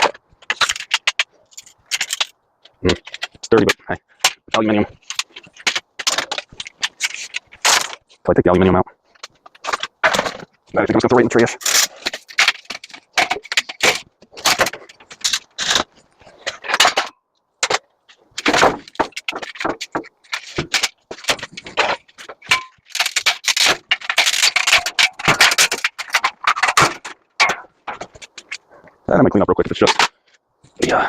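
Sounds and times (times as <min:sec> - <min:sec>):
scrap metal clanking and scraping: 0:02.9 - 0:08.1, 0:09.1 - 0:28.6.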